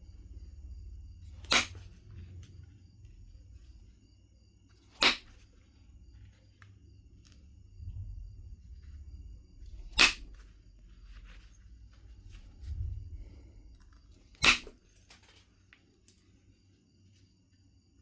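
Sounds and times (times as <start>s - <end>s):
flint knapping strikes: 1.4s - 2.0s, 4.9s - 5.4s, 9.7s - 10.4s, 14.3s - 15.1s.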